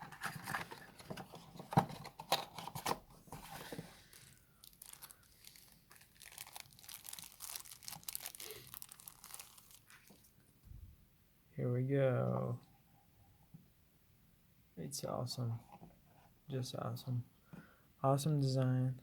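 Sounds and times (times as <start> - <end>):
plastic wrapping crinkling and tearing: 3.6 - 10.3.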